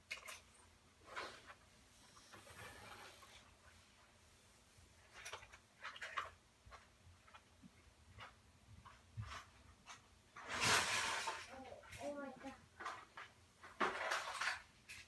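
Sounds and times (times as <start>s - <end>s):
small objects clicking and knocking: 5.0s - 15.0s.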